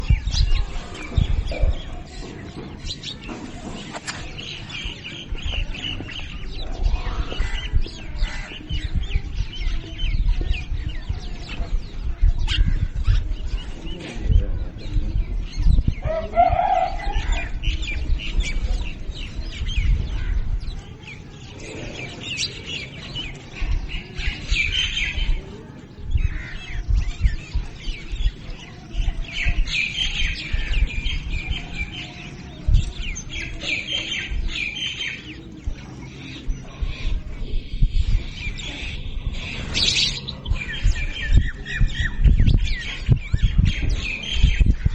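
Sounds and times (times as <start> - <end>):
birds chirping: 0.0 - 44.9
loud low bird call: 15.9 - 20.9.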